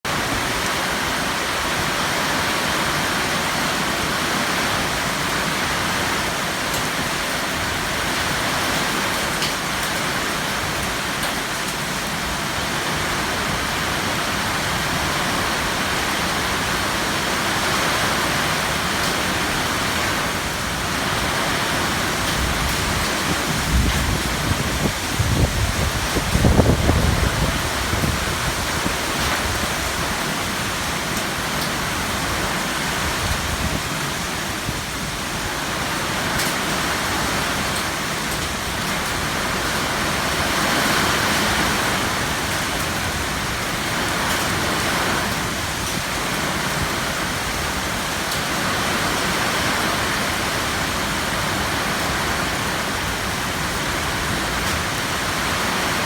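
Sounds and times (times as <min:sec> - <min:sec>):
heavy rain pouring: 0:00.0 - 0:56.0
wind gust buffeting microphone: 0:18.1 - 0:30.7.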